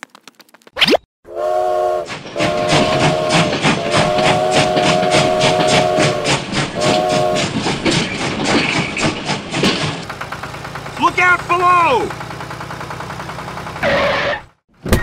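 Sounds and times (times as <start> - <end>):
steam whistle chord: 1.3 - 7.5
toy train chuffing: 1.4 - 13.0.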